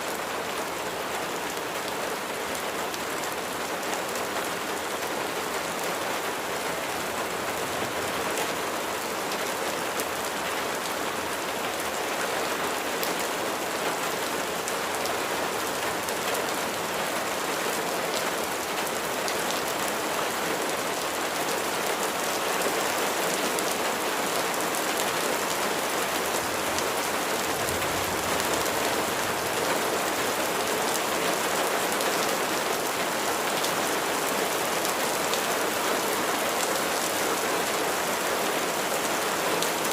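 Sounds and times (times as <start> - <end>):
rain hiss: 23.4 - 39.9.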